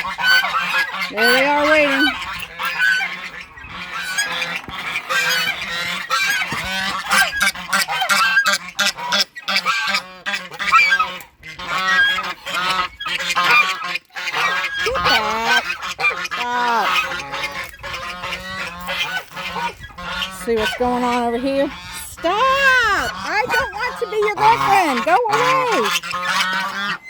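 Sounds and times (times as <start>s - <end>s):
geese honking: 0.0s - 27.0s.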